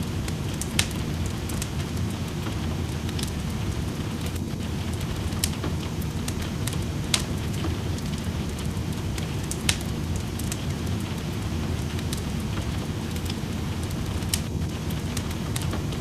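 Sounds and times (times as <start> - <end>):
rain: 0.0 - 16.0
wood fire crackling: 0.0 - 16.0.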